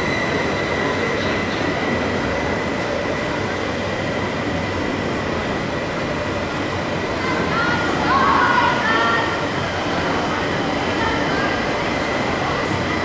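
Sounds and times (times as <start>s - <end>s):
high wheel squeal: 0.0s - 1.9s
train rolling rumble: 0.0s - 13.0s.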